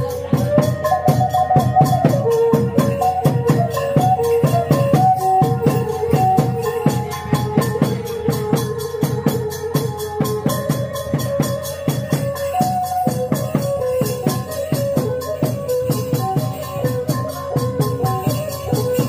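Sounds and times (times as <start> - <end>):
drums and cymbals beating: 0.0 - 19.0
held melody line: 0.0 - 19.0.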